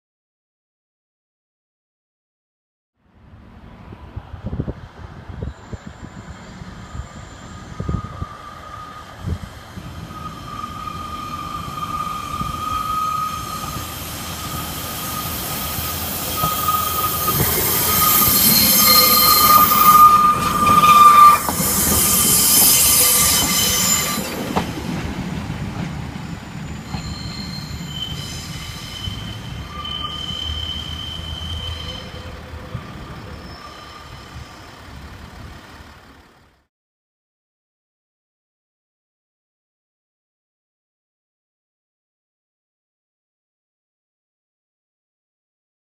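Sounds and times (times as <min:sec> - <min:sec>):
diesel train passing: 0:03.1 - 0:36.7
high-pitched wheel squeal: 0:05.4 - 0:24.5, 0:26.2 - 0:35.0.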